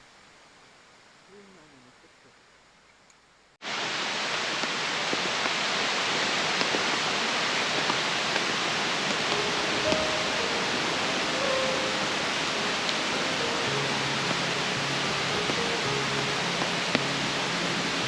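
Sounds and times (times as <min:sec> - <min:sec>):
rain: 0:00.0 - 0:18.0
flowing river: 0:03.6 - 0:18.0
soft held music notes: 0:09.0 - 0:18.0.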